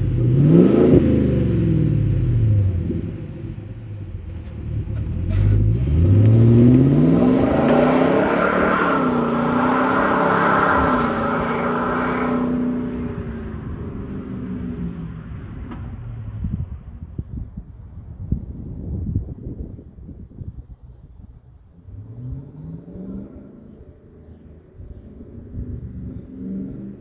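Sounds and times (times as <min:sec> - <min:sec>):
car exhaust accelerating past: 0:00.0 - 0:18.2, 0:21.5 - 0:27.0.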